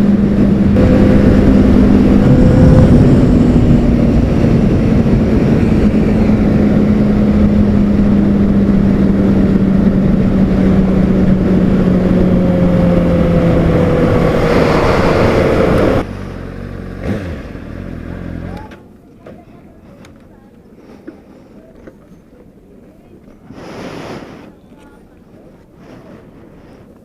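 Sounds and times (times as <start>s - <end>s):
heavy wind noise: 0.0s - 16.1s
motorcycle engine running: 0.0s - 18.8s.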